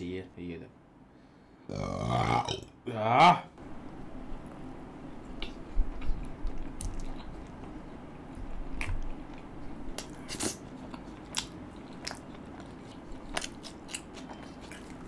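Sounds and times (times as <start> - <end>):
man chewing with mouth smacks: 5.3 - 15.0.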